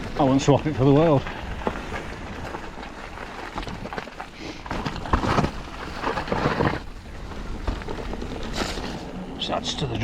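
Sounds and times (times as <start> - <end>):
bike rattle: 0.0 - 10.0
tyres on wet trail: 0.0 - 10.0.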